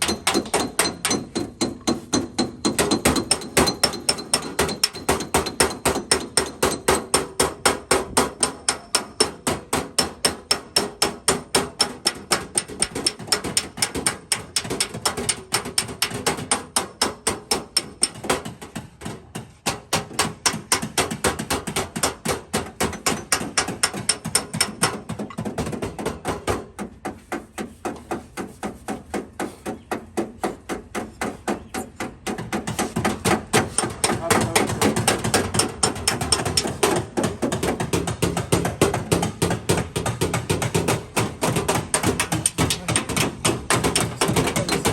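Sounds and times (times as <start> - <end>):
hammer tapping on sheet metal: 0.0 - 44.9.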